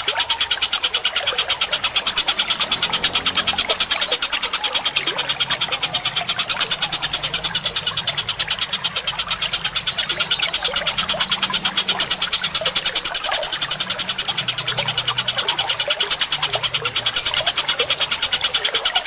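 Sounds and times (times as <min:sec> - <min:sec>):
rapid high bird chirping: 0:00.0 - 0:19.0
trickle of water: 0:00.0 - 0:19.0
low hum: 0:01.4 - 0:15.7.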